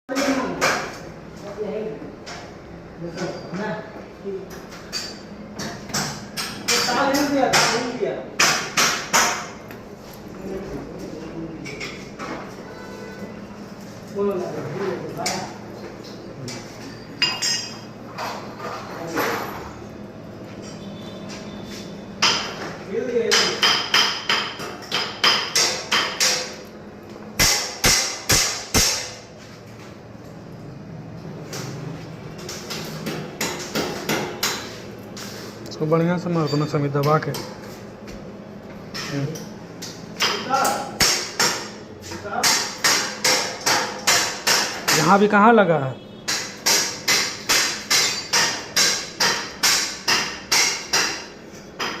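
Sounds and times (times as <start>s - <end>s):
hammer striking steel grille: 27.4s - 29.2s, 46.3s - 52.0s.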